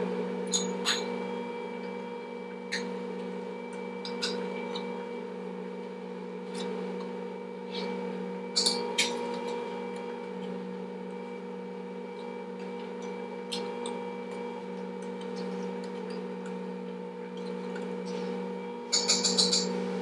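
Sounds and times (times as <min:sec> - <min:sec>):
kitchen appliance motor humming: 0:00.0 - 0:20.0.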